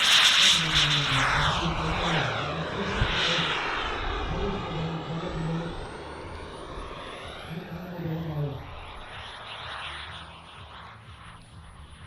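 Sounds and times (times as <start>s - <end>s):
model jet turbine passing by: 0.0s - 12.0s.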